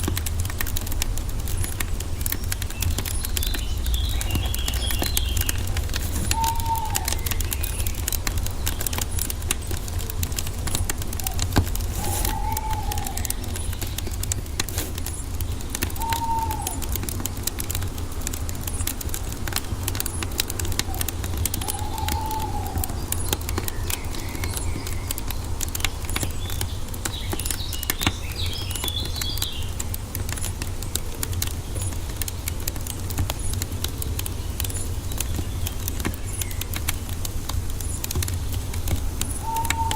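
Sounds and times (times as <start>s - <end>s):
fire pops: 0.0s - 39.9s
wood fire crackling: 0.0s - 39.9s
birds twittering: 0.2s - 39.9s
bird arched calls: 1.6s - 17.0s, 20.0s - 25.5s, 39.0s - 39.9s.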